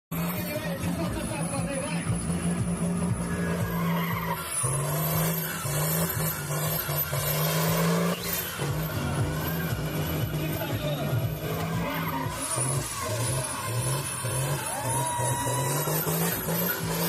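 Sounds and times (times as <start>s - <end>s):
tractor engine running hard: 0.1s - 17.0s
high turbo whistle: 2.2s - 10.8s, 11.5s - 17.0s.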